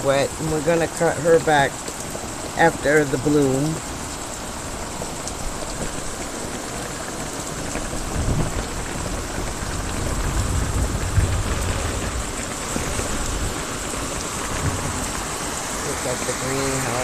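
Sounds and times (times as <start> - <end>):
rain on a metal roof: 0.0 - 17.0
distant thunder rolling: 4.8 - 17.0.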